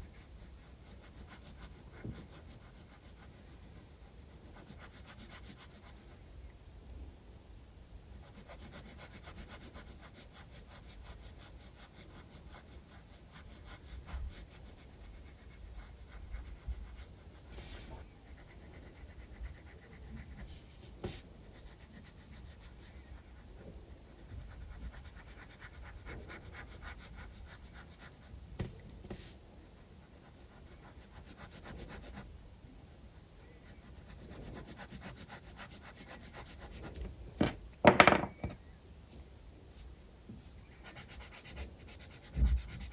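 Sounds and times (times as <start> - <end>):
pencil shading on paper: 0.1 - 6.2, 8.1 - 28.3, 29.1 - 36.9, 40.8 - 42.9.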